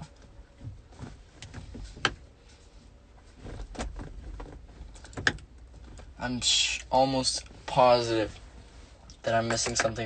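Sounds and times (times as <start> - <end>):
steering wheel clicks and knocks: 0.0 - 2.3, 3.2 - 6.2, 9.1 - 10.0.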